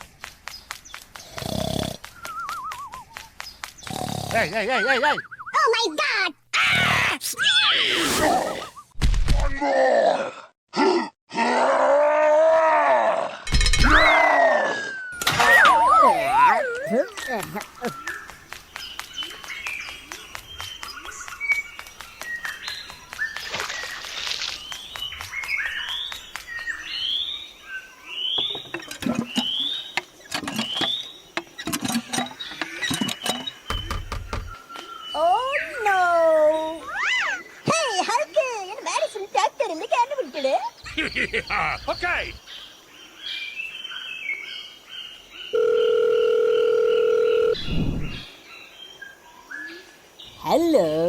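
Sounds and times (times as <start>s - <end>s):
birds chirping faintly: 0.0s - 8.9s, 14.2s - 46.1s.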